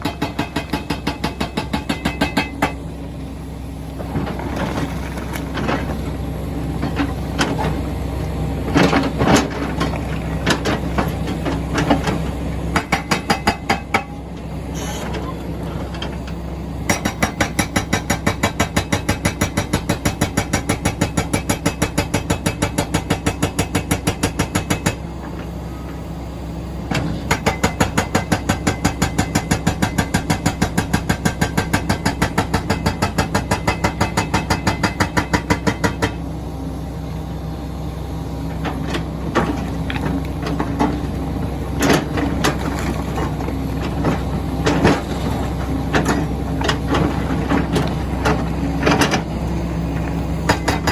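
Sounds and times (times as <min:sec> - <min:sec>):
hydraulic breaker hammering stone: 0:00.0 - 0:02.9, 0:10.6 - 0:14.4, 0:16.9 - 0:25.0, 0:27.0 - 0:36.2, 0:50.4 - 0:50.9
diesel engine running: 0:00.0 - 0:50.9.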